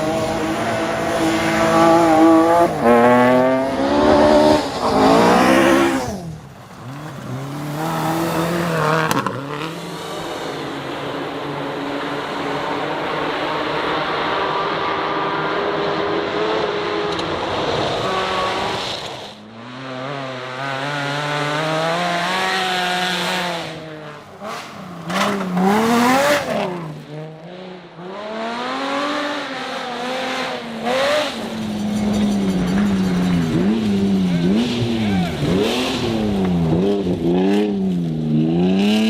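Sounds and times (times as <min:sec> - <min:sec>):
rally car engines accelerating: 0:00.0 - 0:39.0.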